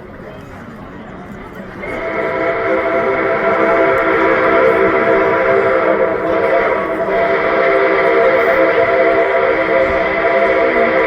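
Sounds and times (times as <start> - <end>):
steam whistle chord blast: 1.8 - 11.0.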